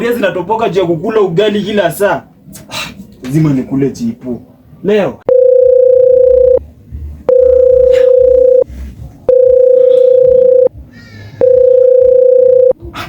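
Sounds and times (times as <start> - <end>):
telephone ringback tone beeps: 5.3 - 6.6, 7.3 - 8.7, 9.3 - 10.7, 11.4 - 12.8.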